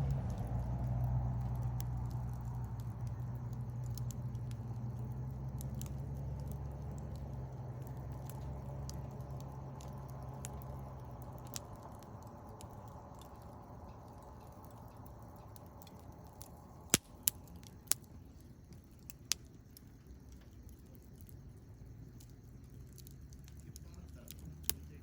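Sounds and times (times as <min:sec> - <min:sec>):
low hum: 0:00.0 - 0:18.7
campfire crackling: 0:00.0 - 0:25.0
sharp loud pops of fire: 0:16.8 - 0:18.0.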